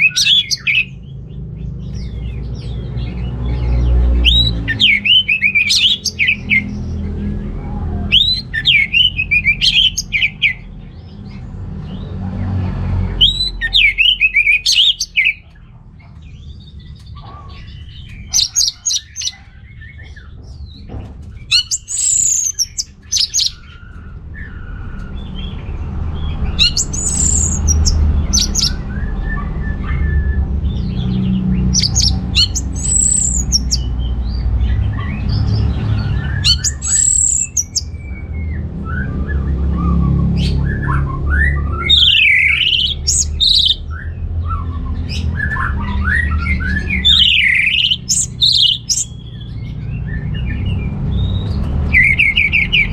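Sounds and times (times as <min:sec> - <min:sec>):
bird whistling song: 0:00.0 - 0:01.0, 0:03.5 - 0:06.9, 0:08.1 - 0:10.7, 0:13.1 - 0:15.6, 0:18.1 - 0:20.2, 0:21.5 - 0:25.6, 0:26.2 - 0:35.4, 0:36.2 - 0:52.9.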